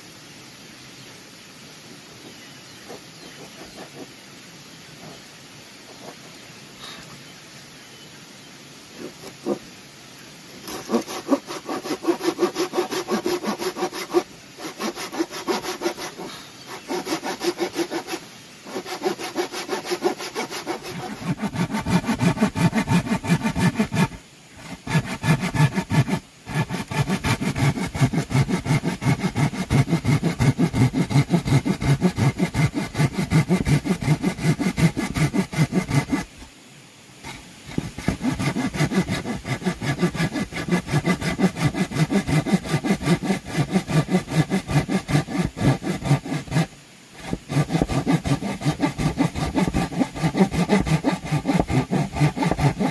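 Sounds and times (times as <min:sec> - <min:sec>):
saw cutting bamboo: 0:02.9 - 0:04.1, 0:09.0 - 0:09.6, 0:10.6 - 0:36.5, 0:37.2 - 0:52.9.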